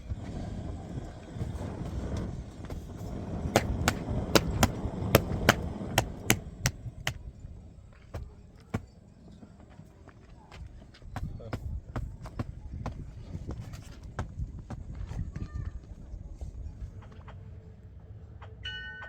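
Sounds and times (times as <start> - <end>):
sharp knocks: 3.5 - 7.2.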